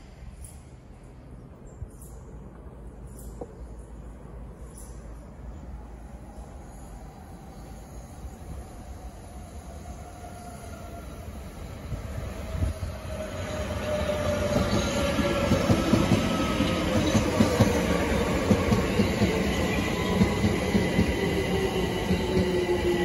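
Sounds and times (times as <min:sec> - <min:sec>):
train wheels clattering on rails: 0:13.0 - 0:23.0.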